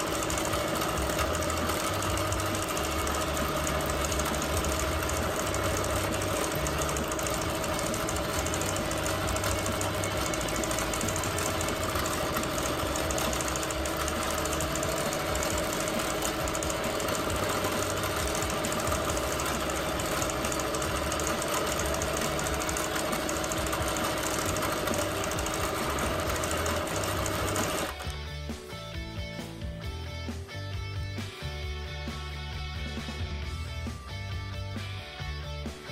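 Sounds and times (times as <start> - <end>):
quilting machine humming: 0.0 - 28.2.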